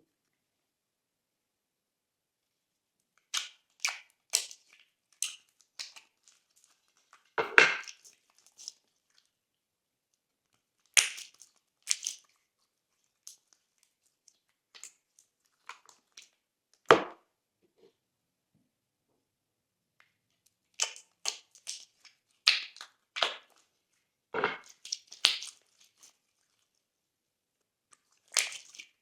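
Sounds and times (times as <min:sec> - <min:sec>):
slime popping and crackling: 0:10.8 - 0:12.4, 0:20.8 - 0:23.6, 0:24.4 - 0:26.6, 0:28.0 - 0:29.0.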